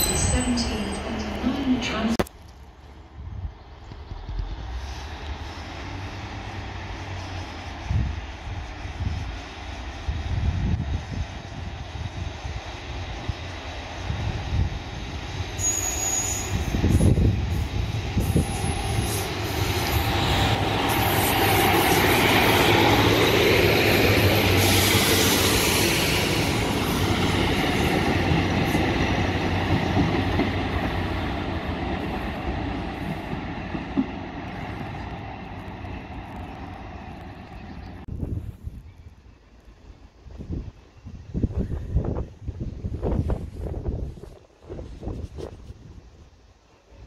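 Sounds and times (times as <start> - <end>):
train engine and wheels passing: 0.0 - 47.0
high squeal: 15.6 - 17.2.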